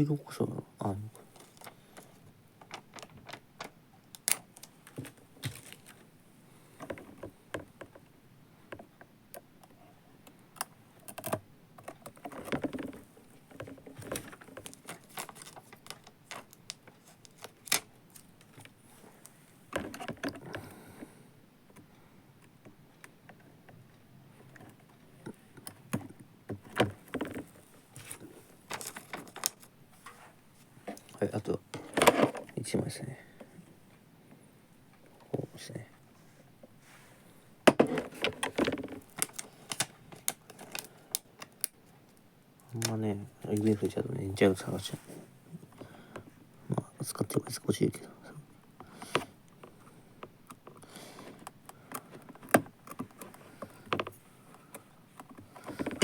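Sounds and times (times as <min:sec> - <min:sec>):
rustling and peeling sheets: 0:01.1 - 0:06.1, 0:12.1 - 0:20.2, 0:26.7 - 0:32.5, 0:37.9 - 0:45.4
plastic parts clicking and tapping: 0:01.4 - 0:06.0, 0:06.8 - 0:08.1, 0:08.7 - 0:18.8, 0:19.7 - 0:20.7, 0:24.5 - 0:29.7, 0:37.7 - 0:43.0, 0:49.0 - 0:56.0.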